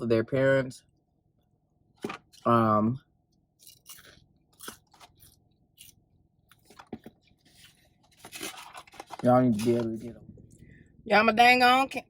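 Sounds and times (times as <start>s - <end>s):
person chewing food: 3.6s - 8.2s.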